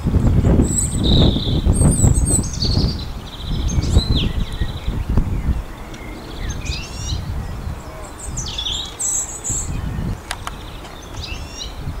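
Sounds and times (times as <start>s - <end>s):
songbird warbling: 0.2s - 11.9s
brief clicks: 10.2s - 11.0s.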